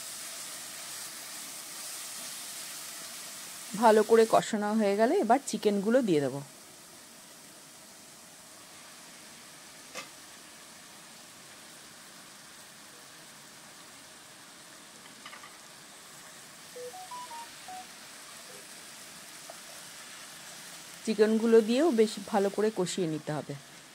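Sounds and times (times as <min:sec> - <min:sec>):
masala sizzling in oil: 0:00.0 - 0:23.9
electronic beeps: 0:16.8 - 0:17.9.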